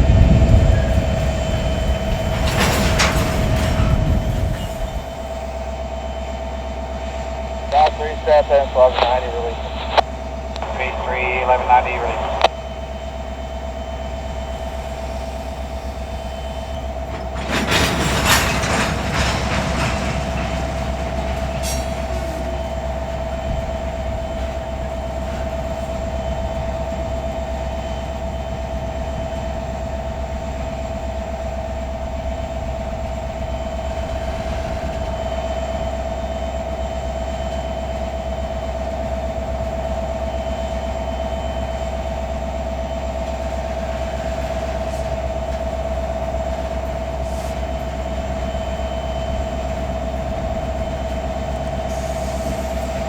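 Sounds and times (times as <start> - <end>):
loud rattling noise: 0.0 - 5.3, 17.2 - 22.1
constant whine: 0.0 - 6.4, 7.0 - 53.0
diesel locomotive humming: 0.0 - 53.0.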